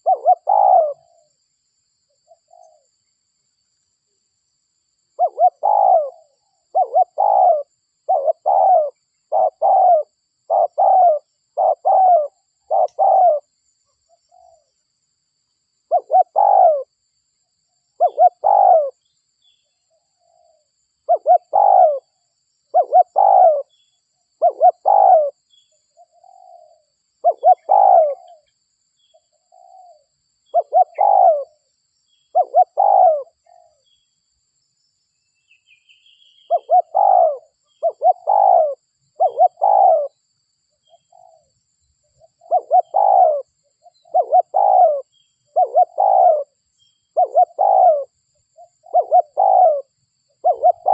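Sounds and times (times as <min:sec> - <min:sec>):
dove cooing: 0:00.0 - 0:01.3, 0:02.3 - 0:02.9, 0:05.2 - 0:13.5, 0:15.9 - 0:16.9, 0:18.0 - 0:19.0, 0:20.2 - 0:23.8, 0:24.4 - 0:25.4, 0:26.0 - 0:28.5, 0:29.4 - 0:31.6, 0:32.3 - 0:33.8, 0:36.5 - 0:40.2, 0:40.8 - 0:41.5, 0:42.2 - 0:50.9.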